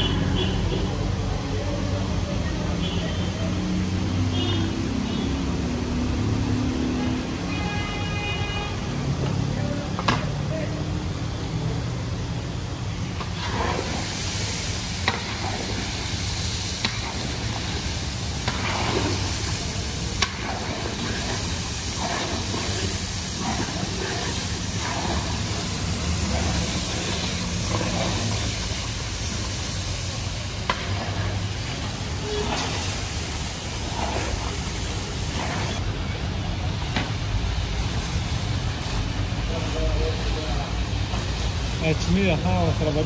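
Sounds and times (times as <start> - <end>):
food sizzling in hot oil: 11.1 - 43.0.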